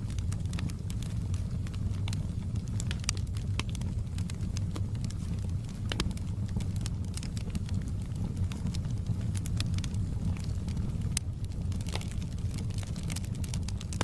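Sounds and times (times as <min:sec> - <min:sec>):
low fire rumble: 0:00.0 - 0:14.0
wood fire crackling and popping: 0:00.0 - 0:14.0.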